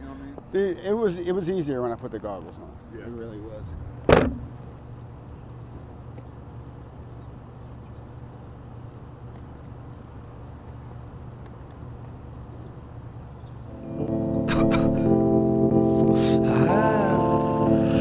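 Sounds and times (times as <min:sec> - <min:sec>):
car engine idling: 0:01.6 - 0:11.8.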